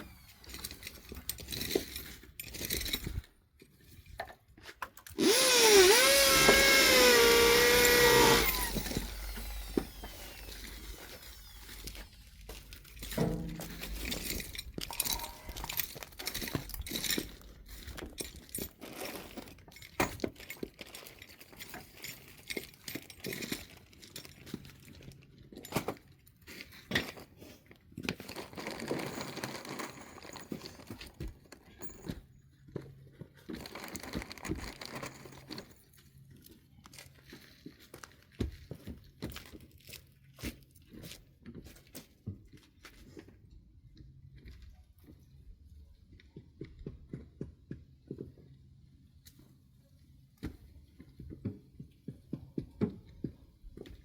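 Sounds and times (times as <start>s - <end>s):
rustling and crinkling: 8.8s - 43.5s.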